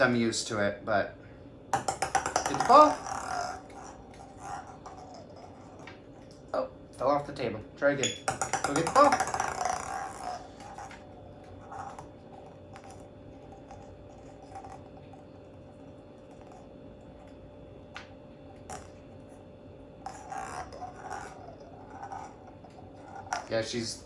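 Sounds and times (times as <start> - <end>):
low steady hum: 0.0 - 24.0
parrot tapping on tabletop: 1.7 - 4.5, 8.0 - 11.0.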